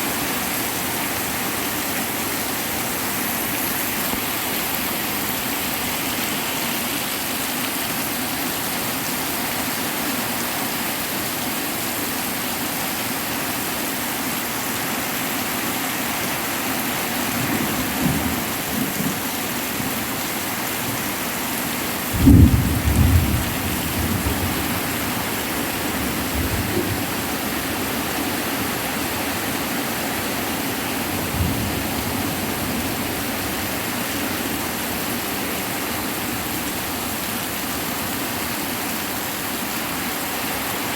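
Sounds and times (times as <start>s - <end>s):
heavy rain falling: 0.0s - 40.9s
thunder rumbling: 22.1s - 27.2s.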